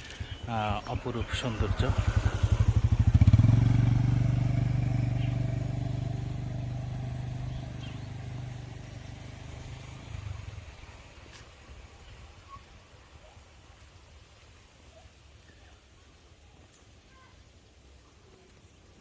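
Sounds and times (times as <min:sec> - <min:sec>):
motorcycle engine passing: 0:00.0 - 0:11.3.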